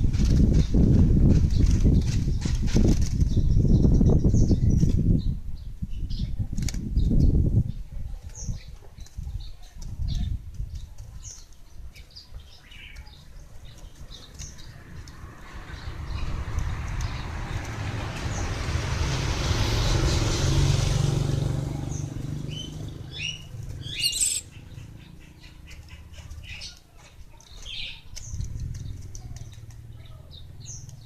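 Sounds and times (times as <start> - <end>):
small birds chirping: 7.0 - 18.5, 21.9 - 31.0
vehicle passing: 14.5 - 25.2.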